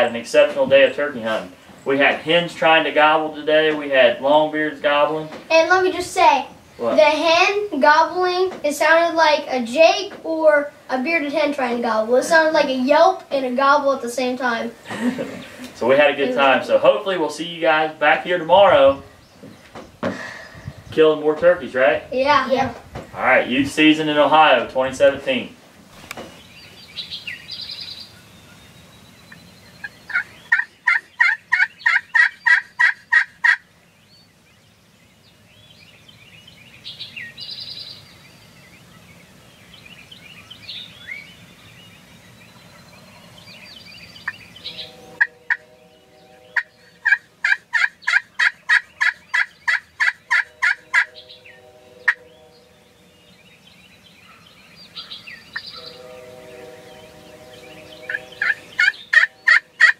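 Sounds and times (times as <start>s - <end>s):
turkey calling: 26.0s - 33.8s, 44.1s - 52.9s, 54.1s - 59.9s
soft bird chirps: 26.0s - 59.9s.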